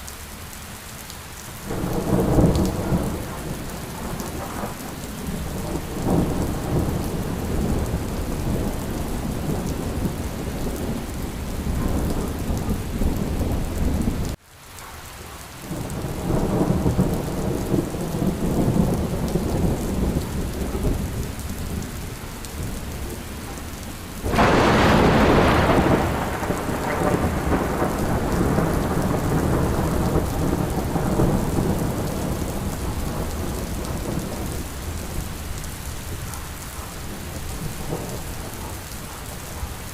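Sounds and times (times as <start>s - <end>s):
steady rain: 0.0s - 39.9s
low rolling thunder: 1.6s - 14.4s, 15.7s - 39.9s
sharp thunderclap: 1.7s - 14.3s, 24.2s - 35.2s.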